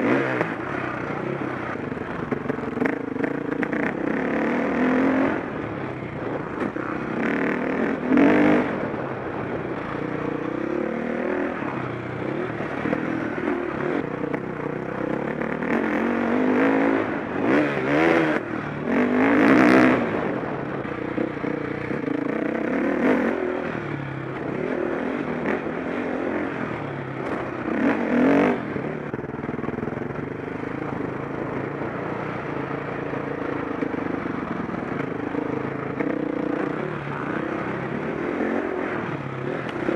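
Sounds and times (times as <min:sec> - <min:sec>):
motocross engine revving: 0:00.0 - 0:05.6, 0:27.2 - 0:29.0.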